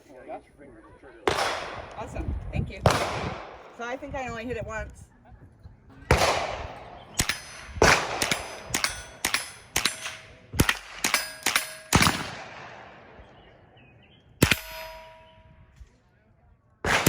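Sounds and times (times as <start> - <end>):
steel targets ringing: 7.2 - 12.2, 14.4 - 15.4.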